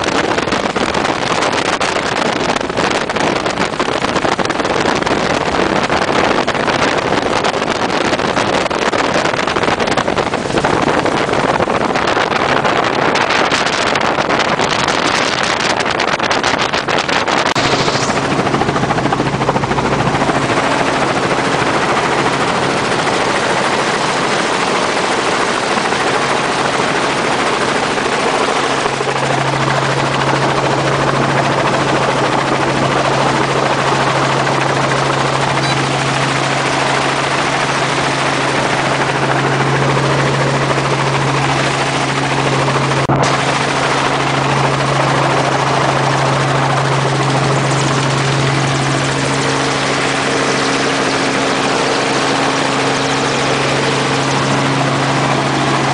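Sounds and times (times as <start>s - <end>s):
helicopter rotor and engine: 0.0s - 55.9s
steady low hum: 17.0s - 55.9s.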